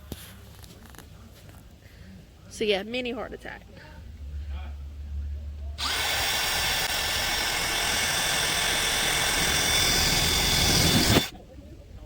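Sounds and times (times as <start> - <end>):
power drill cutting sheet metal: 5.8 - 11.3.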